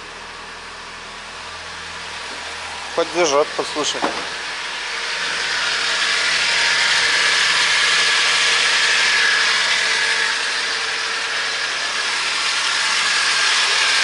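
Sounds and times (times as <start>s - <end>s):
truck engine revving: 2.2s - 14.0s.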